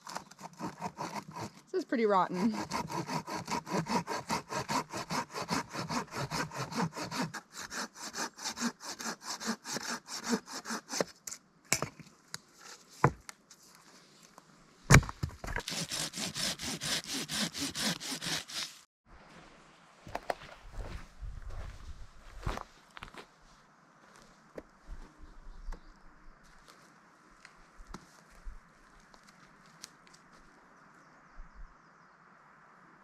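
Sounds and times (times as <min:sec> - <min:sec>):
hand saw cutting wood: 0:00.0 - 0:11.2, 0:15.6 - 0:18.9.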